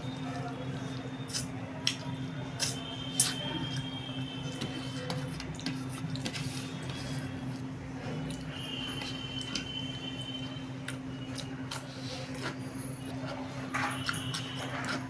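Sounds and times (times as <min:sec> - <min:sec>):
wet chewing: 0:04.5 - 0:15.0.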